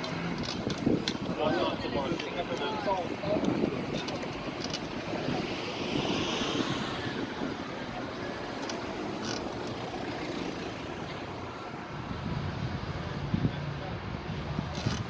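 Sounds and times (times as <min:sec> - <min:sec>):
vehicle engines rumbling: 0:00.0 - 0:15.0.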